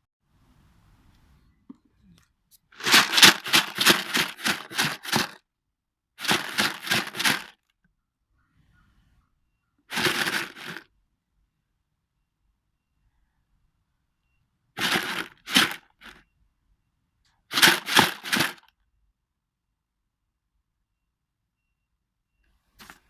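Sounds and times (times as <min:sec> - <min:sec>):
rhythmic crinkling and crackling: 0:02.8 - 0:05.4, 0:06.2 - 0:07.5.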